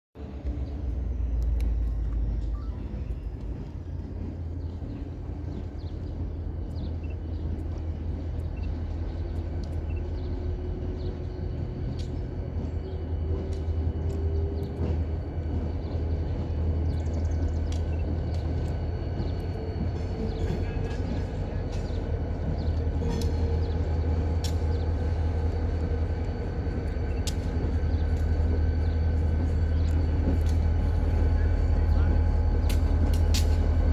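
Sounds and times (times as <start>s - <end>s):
diesel locomotive rumbling: 0.2s - 33.9s
light clicks: 6.6s - 10.4s.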